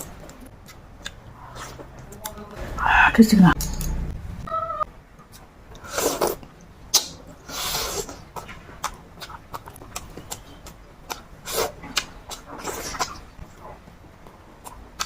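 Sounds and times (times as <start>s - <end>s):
wet chewing and smacks: 0.2s - 2.4s, 8.3s - 15.0s.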